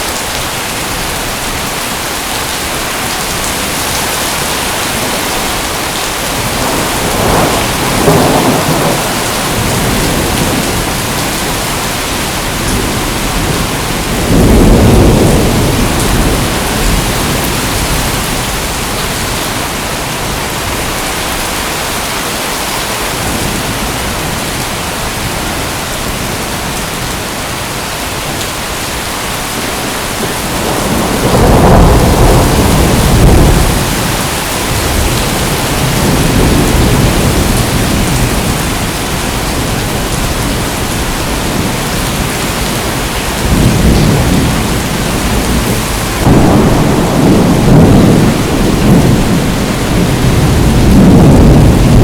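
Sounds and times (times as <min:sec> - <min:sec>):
heavy rain: 0:00.0 - 0:52.0
rolling thunder: 0:03.4 - 0:21.0, 0:29.6 - 0:52.0.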